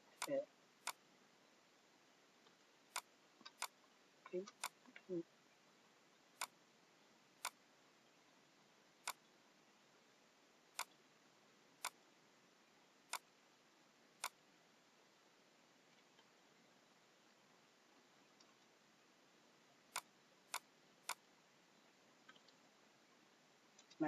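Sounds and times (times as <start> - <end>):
faint steady hiss: 0.0 - 24.0
computer mouse clicking: 2.4 - 5.1, 6.4 - 6.6, 7.4 - 7.6, 9.0 - 9.2, 10.8 - 11.0, 11.8 - 12.0, 13.1 - 13.3, 14.2 - 14.4, 19.9 - 21.3.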